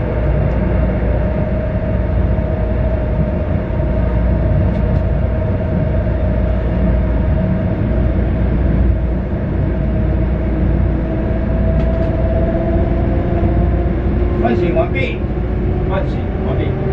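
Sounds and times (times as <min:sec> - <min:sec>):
constant hum: 0:00.0 - 0:16.9
train rumbling in tunnel: 0:00.0 - 0:16.9.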